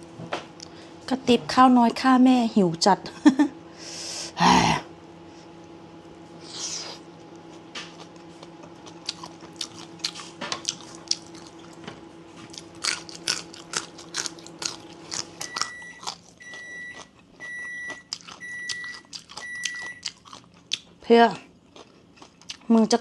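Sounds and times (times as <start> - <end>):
faint steady hum: 0.0 - 23.0
chewing crunchy food: 6.4 - 23.0.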